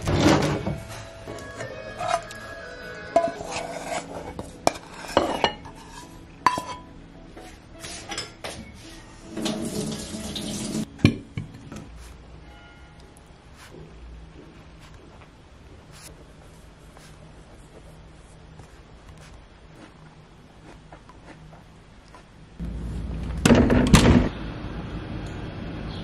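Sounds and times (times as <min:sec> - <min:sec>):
pan clinking against glass bowl: 0:06.4 - 0:06.8.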